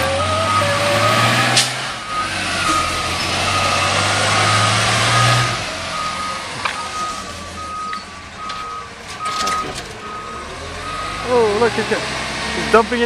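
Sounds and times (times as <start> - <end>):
garbage truck engine hum: 0.0 - 12.6
reverse alarm beeping: 2.0 - 11.5.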